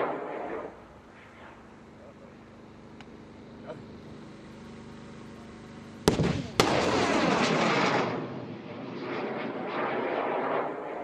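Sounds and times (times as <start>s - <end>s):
rocket motor rushing roar: 0.0s - 11.0s
sharp bangs: 6.1s - 11.0s.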